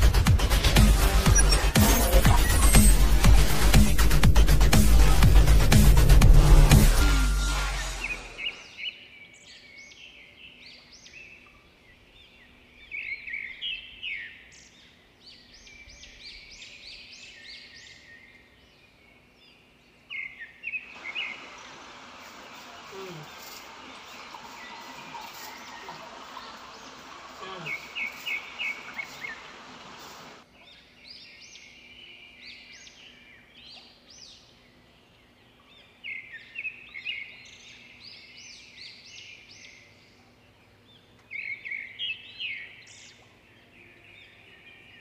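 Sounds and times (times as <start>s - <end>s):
small birds chirping: 7.9s - 45.0s
steady hiss: 20.9s - 30.4s.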